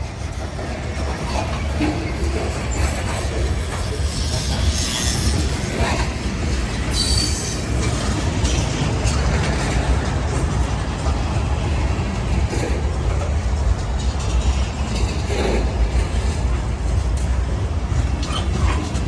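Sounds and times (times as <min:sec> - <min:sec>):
freight cars rumbling on rails: 0:00.0 - 0:19.0
high wheel squeal: 0:06.9 - 0:08.0.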